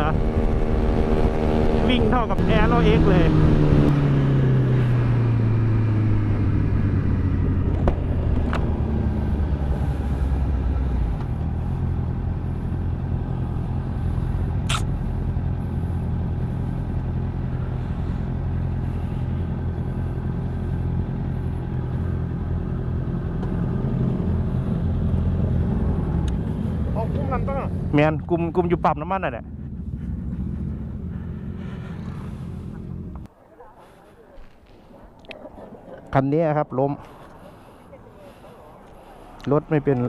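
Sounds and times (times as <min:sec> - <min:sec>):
motorcycle engine running: 0:00.0 - 0:33.3
wind rumble: 0:00.0 - 0:33.3
sharp click: 0:14.7 - 0:14.9.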